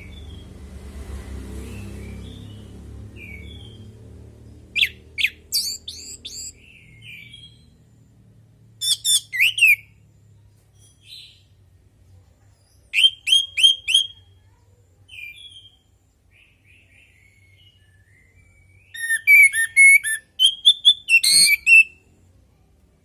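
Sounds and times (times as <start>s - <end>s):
thrush whistled song: 4.7s - 7.8s, 8.8s - 10.0s, 12.9s - 14.3s, 17.0s - 22.1s.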